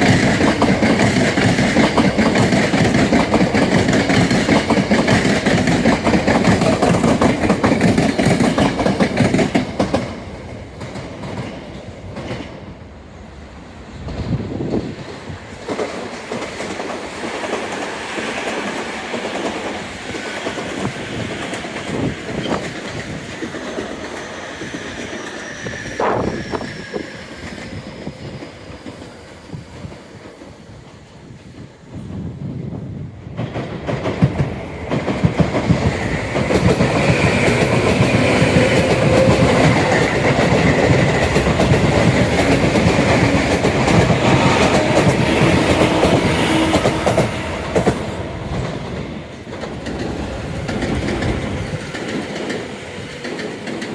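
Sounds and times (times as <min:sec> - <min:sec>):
wheels clicking over rail joints: 0:00.0 - 0:12.6, 0:33.3 - 0:53.9
electric train passing: 0:00.0 - 0:53.9.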